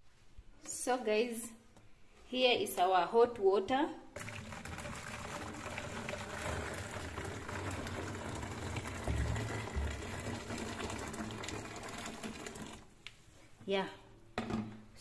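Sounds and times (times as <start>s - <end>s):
water boiling: 4.2s - 13.0s.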